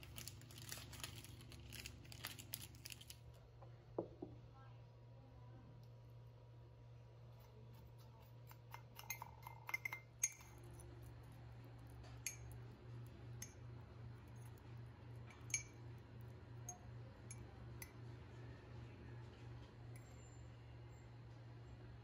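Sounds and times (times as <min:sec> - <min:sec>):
low steady hum: 0:00.0 - 0:22.0
cutlery clinking against mug: 0:08.0 - 0:10.9, 0:12.1 - 0:12.6.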